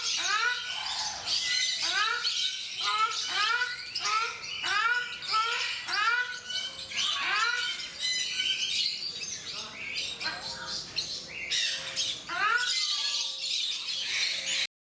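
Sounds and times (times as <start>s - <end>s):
shelducks honking: 0.0s - 7.9s
high bird chirps: 0.0s - 14.7s.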